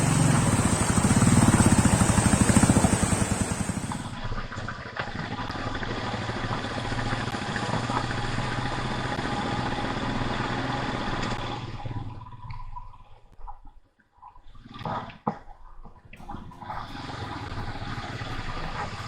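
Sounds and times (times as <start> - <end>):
vehicle engine running: 0.0 - 4.4, 5.5 - 12.4, 16.2 - 19.0.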